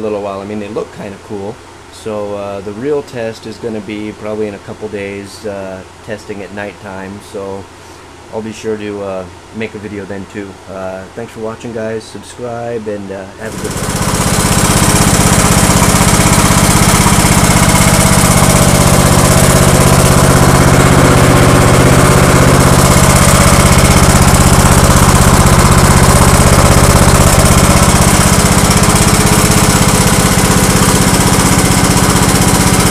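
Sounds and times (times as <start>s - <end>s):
lawn tractor engine running: 13.4s - 32.9s.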